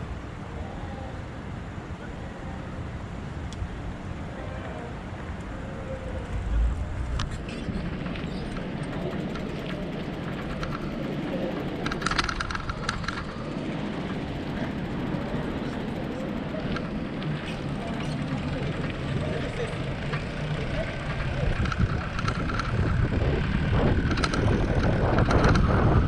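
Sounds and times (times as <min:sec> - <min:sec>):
bicycle air and tyre rumble: 0:02.7 - 0:26.0
rattling clicks: 0:06.5 - 0:15.0, 0:20.0 - 0:25.9.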